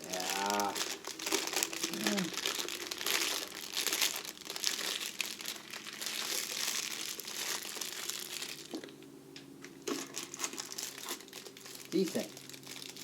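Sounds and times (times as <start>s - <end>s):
wrapping crinkling and rustling: 0.0s - 9.0s, 9.6s - 13.0s.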